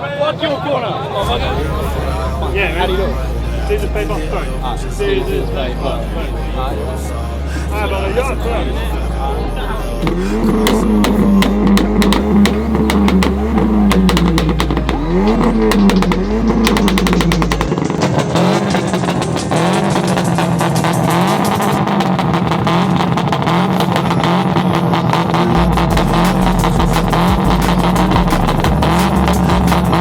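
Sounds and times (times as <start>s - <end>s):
car engine on rev limiter: 1.2s - 30.0s
exhaust pops and crackles: 10.0s - 30.0s.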